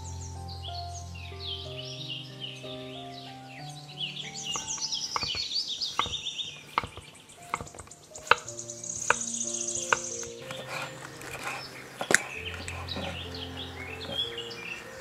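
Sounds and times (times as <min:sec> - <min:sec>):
knife knocking on cutting board: 0:06.0 - 0:06.2.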